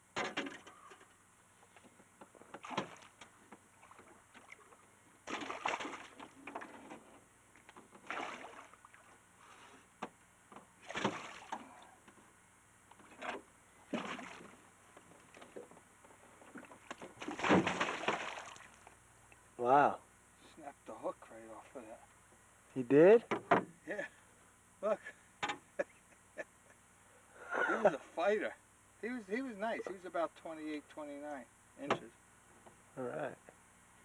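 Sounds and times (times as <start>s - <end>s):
water splashing around boat: 2.3s - 9.9s, 10.6s - 12.1s, 12.9s - 19.4s.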